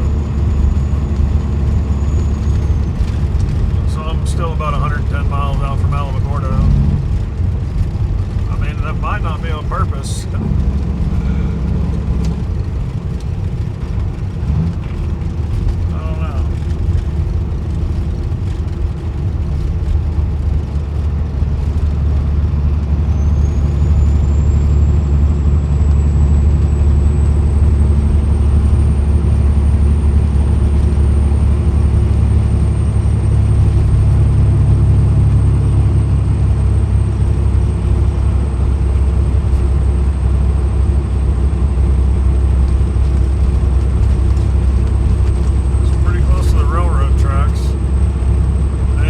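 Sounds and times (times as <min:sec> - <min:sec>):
truck diesel engine drone: 0:00.0 - 0:49.0.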